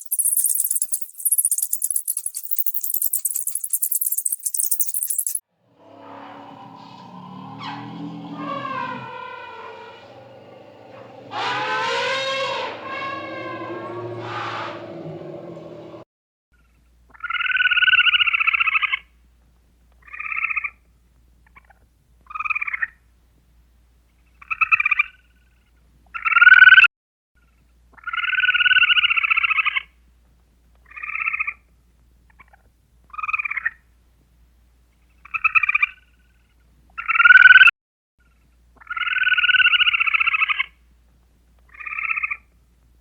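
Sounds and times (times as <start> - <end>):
animal calls with rattling pulse: 0.0 - 5.4, 6.0 - 16.0.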